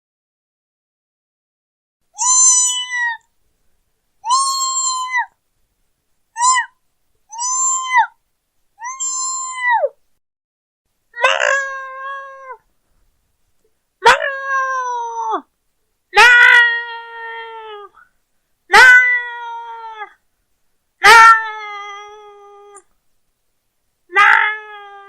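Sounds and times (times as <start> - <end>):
woman imitating cat meows: 2.2 - 3.2, 4.2 - 5.3, 6.4 - 8.2, 8.8 - 10.0, 11.2 - 12.6, 14.0 - 15.5, 16.2 - 18.0, 18.7 - 20.2, 21.0 - 22.9, 24.1 - 25.0.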